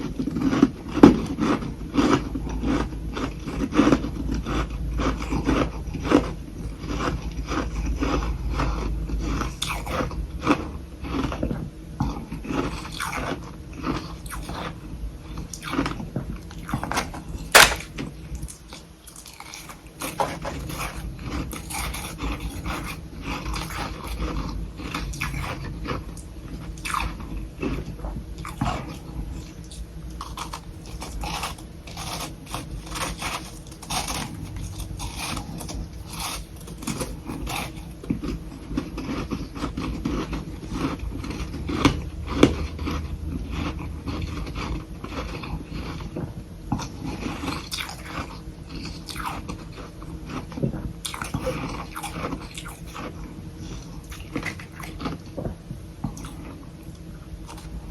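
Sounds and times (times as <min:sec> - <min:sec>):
person crunching frost: 0:00.1 - 0:11.4, 0:15.4 - 0:18.1, 0:18.7 - 0:46.1.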